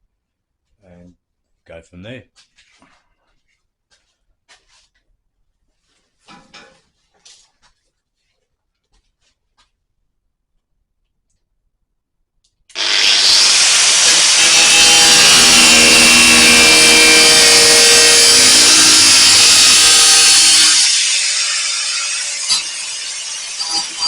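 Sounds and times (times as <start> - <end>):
angle grinder cutting steel: 12.7 - 24.0.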